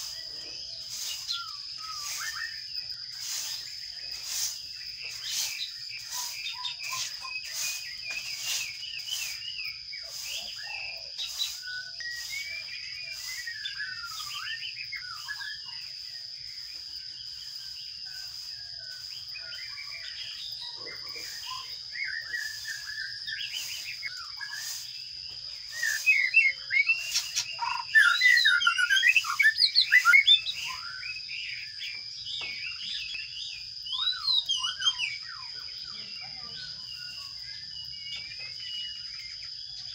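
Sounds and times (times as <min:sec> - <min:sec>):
sparrows chirping: 0:00.0 - 0:39.9
shrill rapid chirping: 0:19.6 - 0:31.1.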